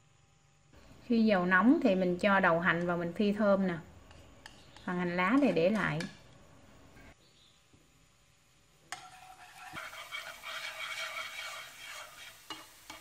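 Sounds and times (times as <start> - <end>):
scallions sizzling in hot oil: 8.0 - 13.0.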